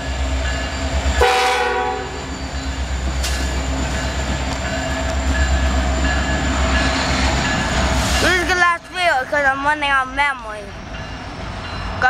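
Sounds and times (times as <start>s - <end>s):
locomotives rumbling past: 0.0s - 12.0s
locomotive horn chord: 1.2s - 2.3s.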